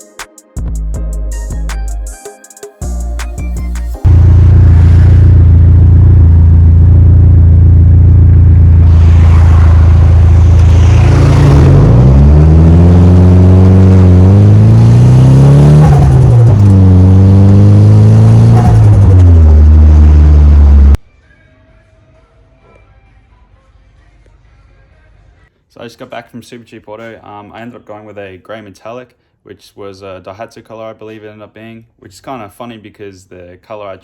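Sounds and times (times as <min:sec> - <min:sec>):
car engine revving: 0:04.0 - 0:21.0.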